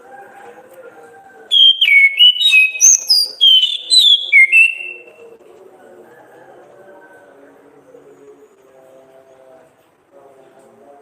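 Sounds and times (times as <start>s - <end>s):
thrush singing whistled notes: 1.5s - 5.2s.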